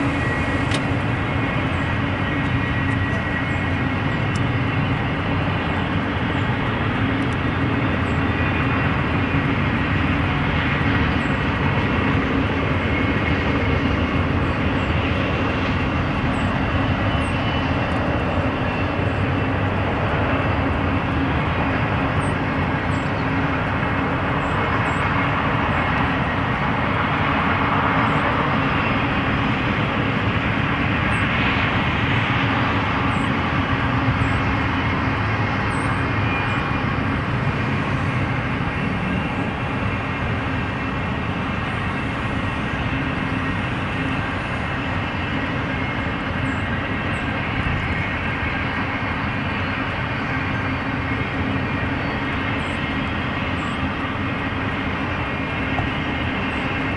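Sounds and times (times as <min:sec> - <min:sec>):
freight train wheels rumbling: 0:00.0 - 0:56.9.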